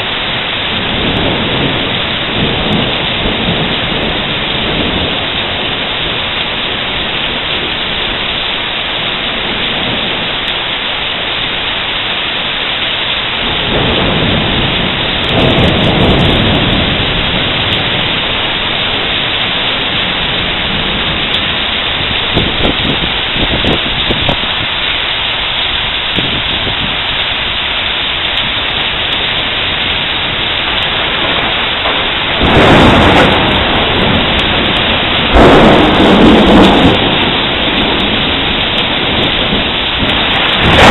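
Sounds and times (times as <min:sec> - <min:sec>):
thunder rolling: 0:00.0 - 0:08.2, 0:13.3 - 0:24.7, 0:28.3 - 0:40.9
heavy rain falling: 0:00.0 - 0:40.9.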